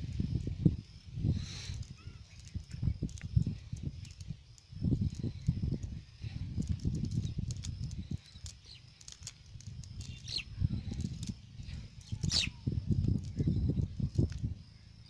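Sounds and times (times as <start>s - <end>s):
bird calls: 7.1s - 9.3s, 9.9s - 15.0s.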